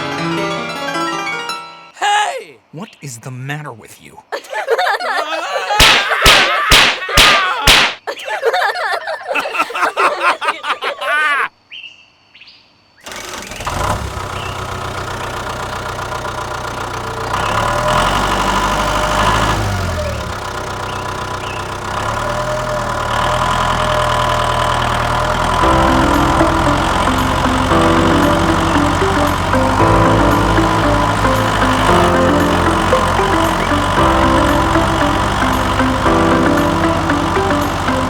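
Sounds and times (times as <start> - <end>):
voices: 2.0 - 7.7
tractor engine running: 13.1 - 38.0.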